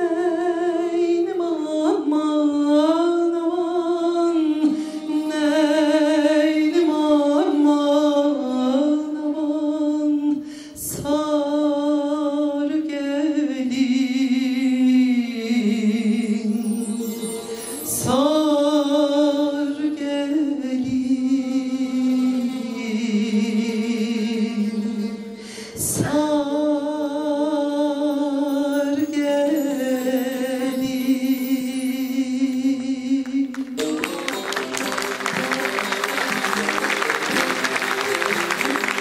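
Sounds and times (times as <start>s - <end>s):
person singing folk song: 0.0s - 39.0s
applause: 33.5s - 39.0s.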